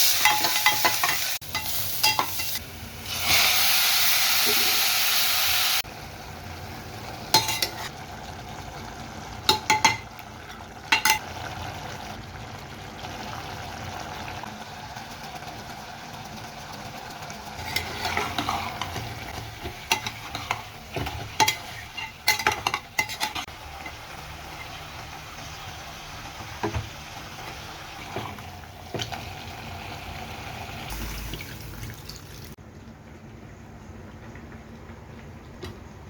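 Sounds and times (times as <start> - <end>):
spoon knocking and scraping pan: 0.0 - 2.6, 7.3 - 7.9, 9.5 - 10.1, 17.6 - 24.0, 26.4 - 29.2
curry sizzling in a pan: 0.0 - 32.6.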